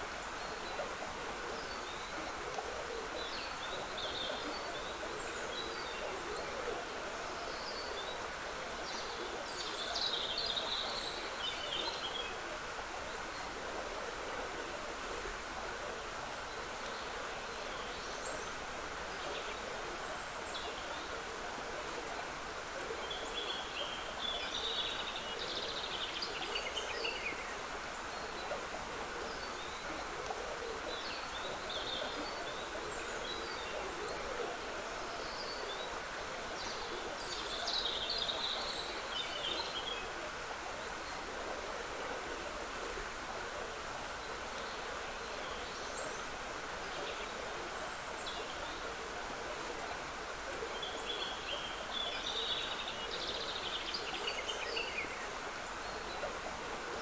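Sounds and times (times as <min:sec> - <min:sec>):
trickling stream: 0:00.0 - 0:57.0.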